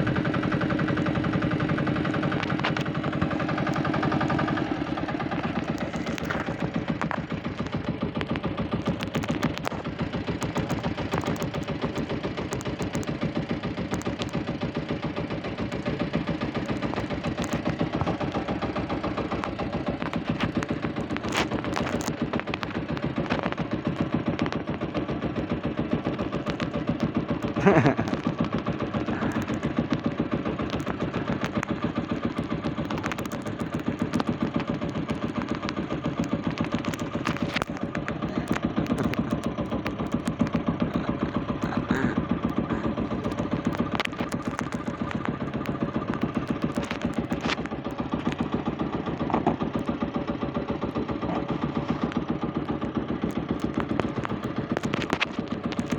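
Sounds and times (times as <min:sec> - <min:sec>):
boat engine chugging: 0:00.0 - 0:55.9.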